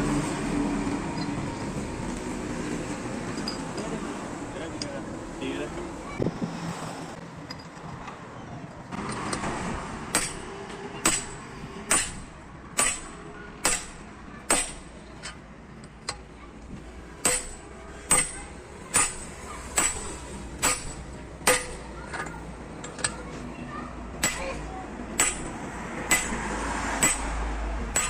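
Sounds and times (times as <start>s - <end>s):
hammer striking metal: 9.0s - 15.4s, 17.2s - 23.2s, 24.2s - 28.0s.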